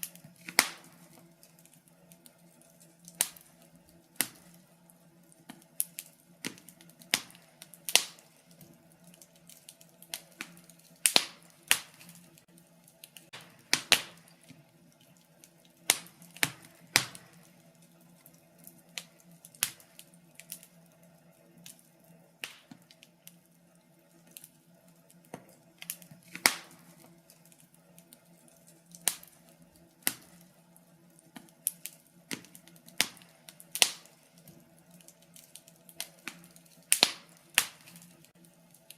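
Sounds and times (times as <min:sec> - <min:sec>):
faint steady hum: 0:00.0 - 0:38.9
fire crackling in fireplace: 0:00.0 - 0:38.9.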